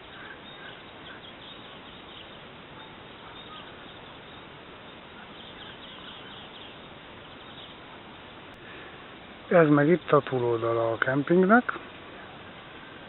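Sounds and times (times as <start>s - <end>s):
faint high bird chirps: 0.0s - 8.0s
background hiss: 0.0s - 13.0s.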